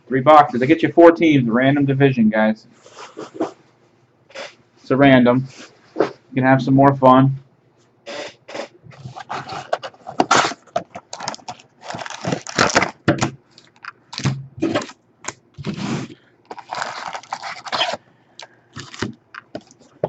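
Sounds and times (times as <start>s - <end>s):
wrappers crinkling and tearing: 9.2s - 18.0s, 18.8s - 19.7s.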